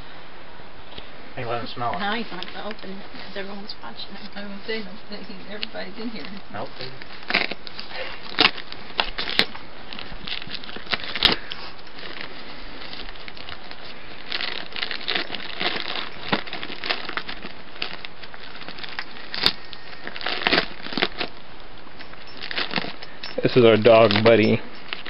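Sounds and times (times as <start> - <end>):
wrapping paper crinkling and tearing: 4.4 - 25.0.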